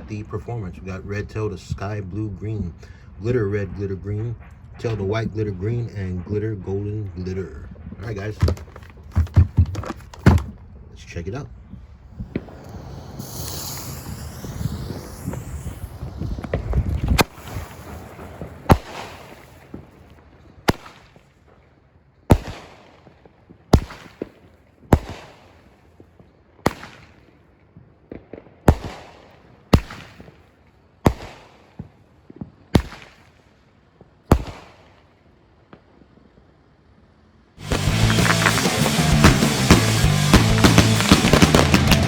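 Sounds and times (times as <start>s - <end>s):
fireworks bangs with echo: 11.7s - 21.6s, 22.3s - 35.2s, 37.6s - 42.0s.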